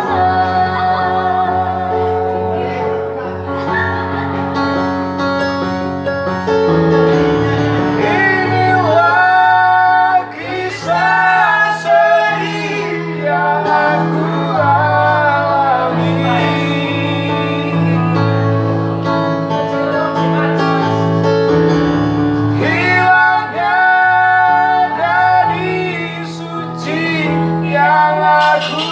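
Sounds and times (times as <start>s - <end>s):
instrumental accompaniment: 0.0s - 28.9s
child singing: 28.3s - 28.9s.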